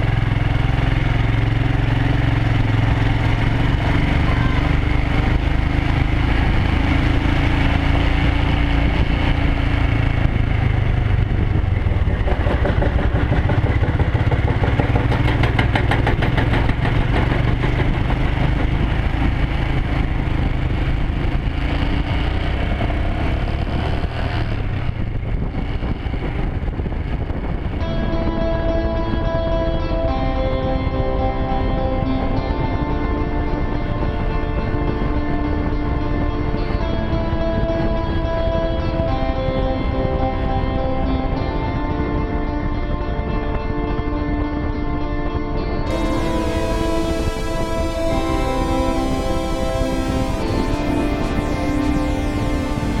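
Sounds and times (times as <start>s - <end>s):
motorcycle engine humming: 0.0s - 53.0s.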